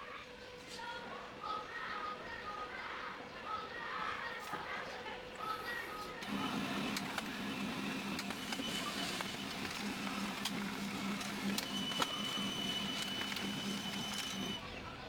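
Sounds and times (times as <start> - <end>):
printer motor hum: 5.8 - 15.0
printer clicks: 6.2 - 14.6.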